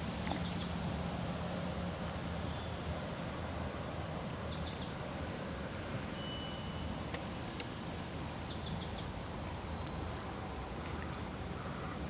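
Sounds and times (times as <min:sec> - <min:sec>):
songbird trilling: 0:00.0 - 0:00.8, 0:03.5 - 0:04.9, 0:07.5 - 0:10.2
low background noise: 0:00.0 - 0:12.0.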